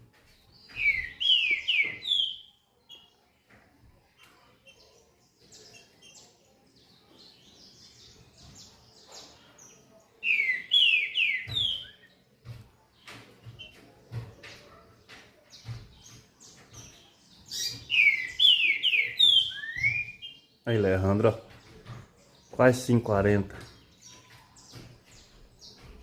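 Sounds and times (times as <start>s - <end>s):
bird twittering: 0.7s - 3.1s, 10.2s - 12.1s, 15.5s - 20.6s.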